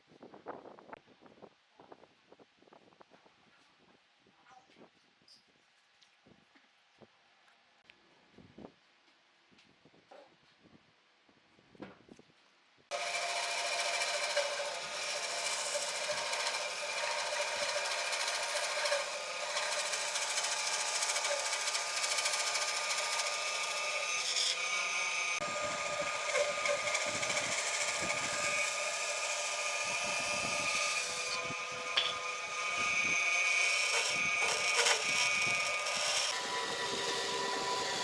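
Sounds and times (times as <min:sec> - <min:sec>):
power tool whining against wood: 0:12.9 - 0:38.0.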